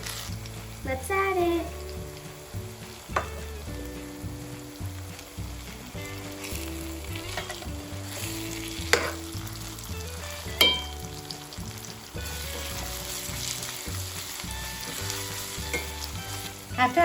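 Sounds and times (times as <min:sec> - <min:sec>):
paste sizzling in hot oil: 0:00.0 - 0:17.0
spoon clinking against pan: 0:10.6 - 0:11.0.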